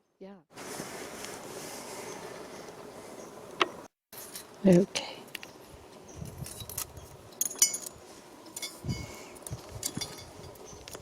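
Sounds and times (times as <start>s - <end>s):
metal tools clinking: 6.3s - 10.8s.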